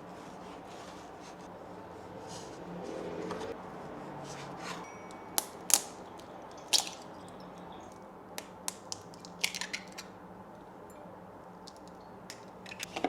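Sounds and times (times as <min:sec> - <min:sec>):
small hard objects clicking: 0:05.4 - 0:10.1, 0:11.6 - 0:13.0.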